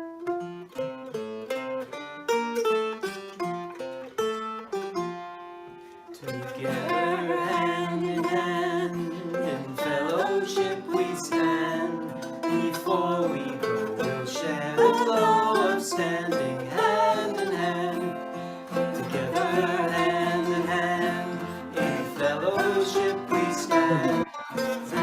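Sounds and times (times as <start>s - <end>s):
plucked string instrument: 0.0s - 25.0s
person singing: 6.2s - 25.0s.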